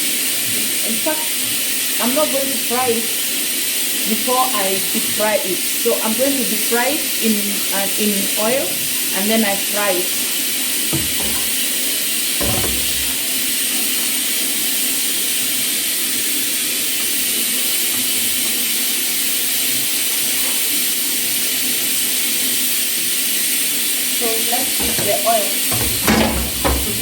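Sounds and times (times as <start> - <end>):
oil sizzling in a pan: 0.0 - 27.0
low knocks: 11.0 - 11.6, 12.4 - 13.2.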